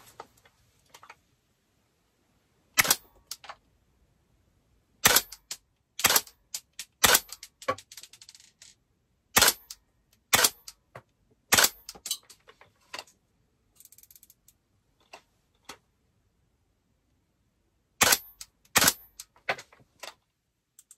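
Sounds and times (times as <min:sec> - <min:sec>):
airsoft rifle shots: 0:02.8 - 0:03.2, 0:05.0 - 0:05.4, 0:06.0 - 0:06.4, 0:07.0 - 0:07.4, 0:09.4 - 0:09.7, 0:10.3 - 0:10.7, 0:11.5 - 0:11.9, 0:18.0 - 0:19.2
rifle clicks and rattle: 0:02.8 - 0:03.6, 0:05.0 - 0:08.8, 0:09.4 - 0:15.8, 0:18.0 - 0:20.9.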